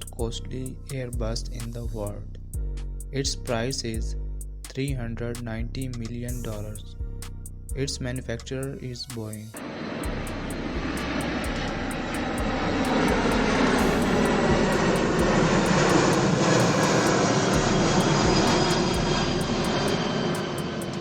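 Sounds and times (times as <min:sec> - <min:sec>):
jet engine roar with whine: 0:09.6 - 0:21.0.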